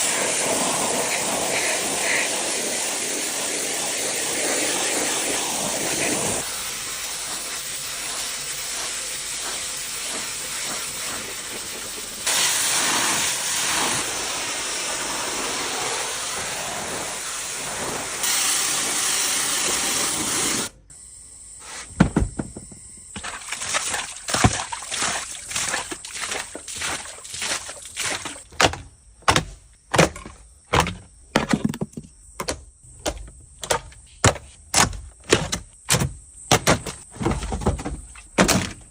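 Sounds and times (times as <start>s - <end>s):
high-pressure water spray hissing: 0.0s - 20.7s, 23.2s - 28.4s
knocks and scrapes: 27.5s - 38.9s.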